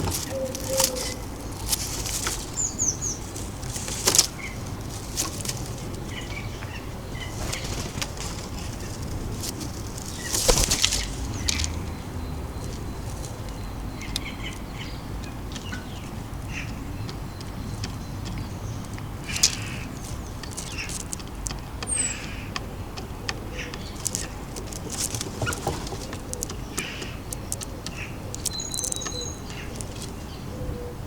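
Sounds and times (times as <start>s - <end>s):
birds wings flapping: 0.0s - 13.6s, 23.9s - 30.2s
faint high bird chirps: 28.4s - 30.4s.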